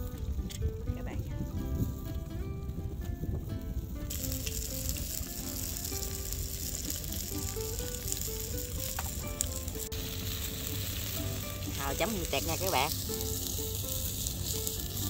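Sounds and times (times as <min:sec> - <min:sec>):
food sizzling in hot oil: 0:03.6 - 0:15.0.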